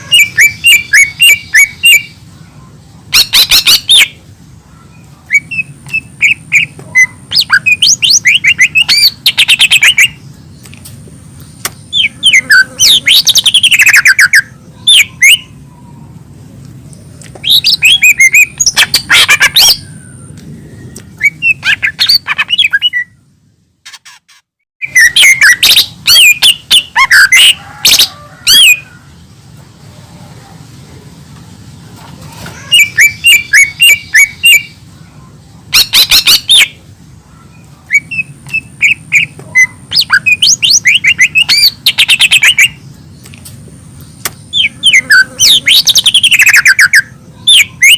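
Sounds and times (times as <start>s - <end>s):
bird chirping and trilling: 0.0s - 10.7s, 11.4s - 16.2s, 16.8s - 29.4s, 32.4s - 43.3s, 43.9s - 47.9s
low steady hum: 0.0s - 24.2s.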